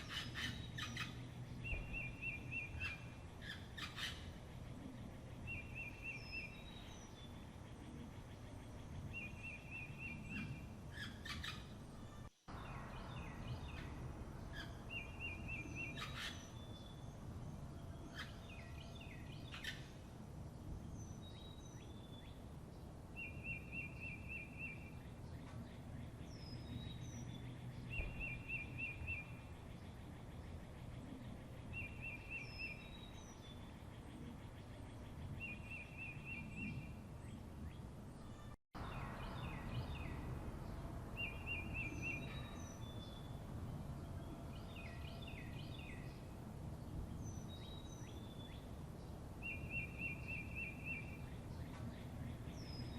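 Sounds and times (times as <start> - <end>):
birds chirping and whistling: 0.0 - 7.4, 8.6 - 20.0, 23.2 - 33.7, 34.6 - 46.3, 49.4 - 52.9
low background rumble: 0.0 - 23.5, 36.4 - 49.4.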